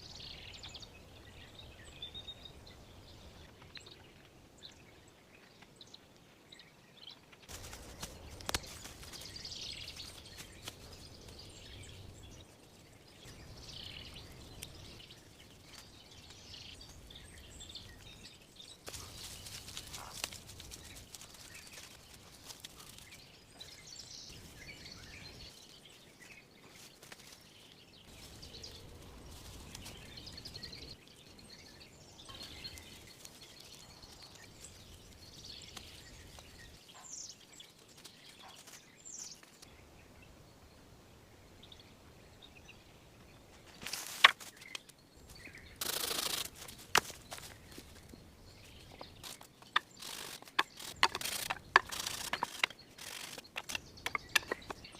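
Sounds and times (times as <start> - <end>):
bird chirps: 44.4 - 54.9
rasping scraping of material: 49.8 - 54.6.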